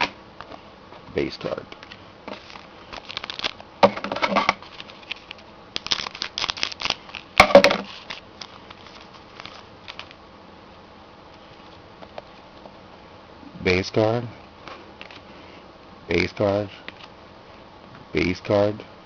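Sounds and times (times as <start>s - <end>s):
card packs crinkling and rustling: 1.7s - 10.2s.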